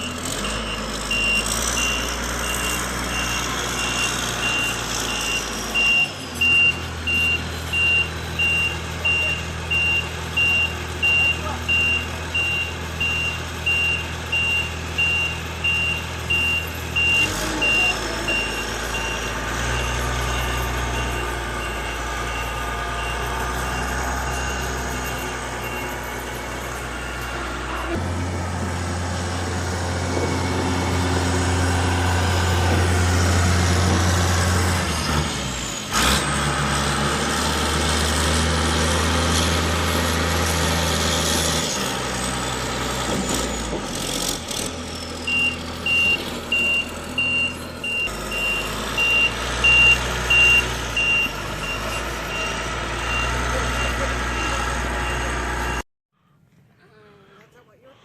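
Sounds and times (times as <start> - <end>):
reversing alarm beeping: 0.0 - 28.0, 45.2 - 55.8
heavy vehicle engine running: 0.0 - 55.8.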